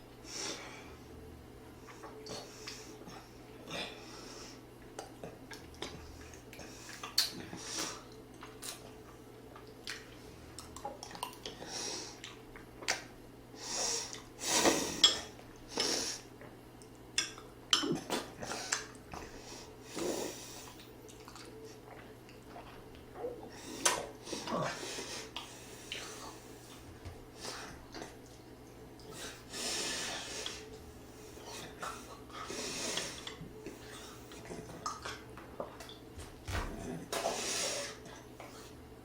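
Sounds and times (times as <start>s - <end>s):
chewing: 4.8s - 11.6s, 12.2s - 13.1s, 19.9s - 29.5s, 30.4s - 36.0s
heavy breathing: 29.1s - 34.8s.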